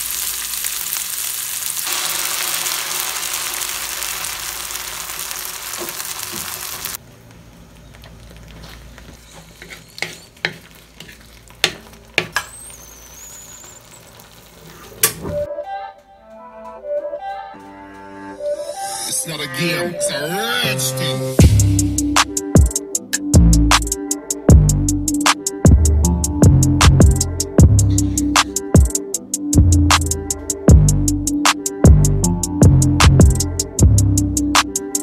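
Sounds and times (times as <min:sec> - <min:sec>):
vegetables sizzling in a pan: 0:00.0 - 0:15.0
sauce simmering: 0:00.0 - 0:15.1
wooden spoon knocking a pan: 0:09.6 - 0:12.5.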